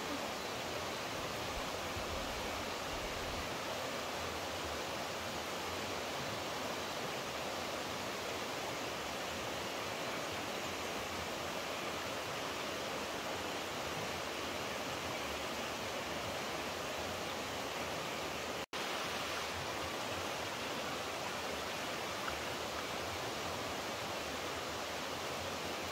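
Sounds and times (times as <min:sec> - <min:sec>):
rushing water hiss: 0:00.0 - 0:25.9.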